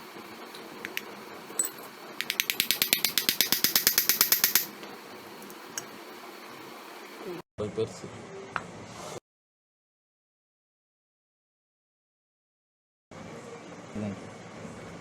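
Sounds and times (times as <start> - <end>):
rapid mechanical clicks: 2.2 - 4.7.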